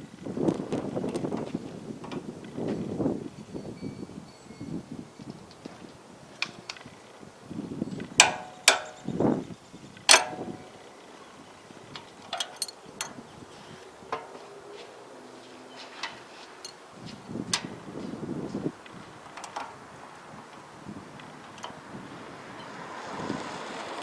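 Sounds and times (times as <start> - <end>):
clicks of hand tools and metal parts: 8.2 - 9.2, 10.1 - 10.8, 12.0 - 13.2, 14.1 - 14.5, 19.4 - 19.7.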